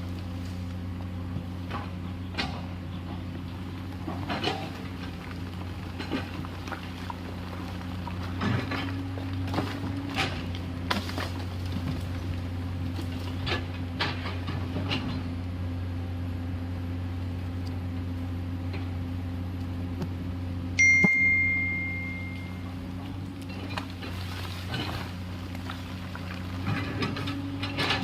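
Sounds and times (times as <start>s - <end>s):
excavator diesel engine droning: 0.0s - 28.0s
high ringing ding: 20.8s - 22.8s.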